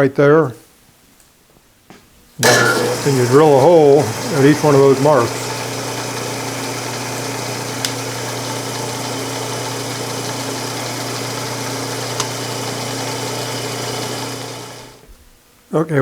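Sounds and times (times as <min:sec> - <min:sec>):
electric drill drilling wood: 0:02.4 - 0:15.1
short ticks: 0:07.8 - 0:08.0, 0:12.1 - 0:12.4.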